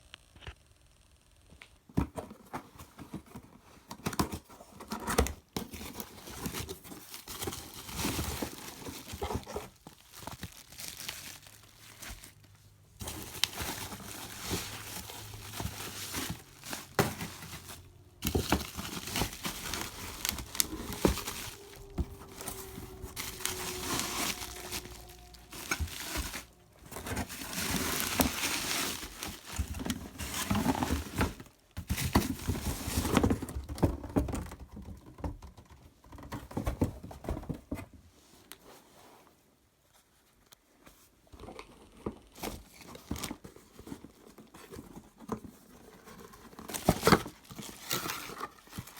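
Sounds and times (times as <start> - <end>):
packaging crinkling and tearing: 3.8 - 33.8, 46.1 - 48.9.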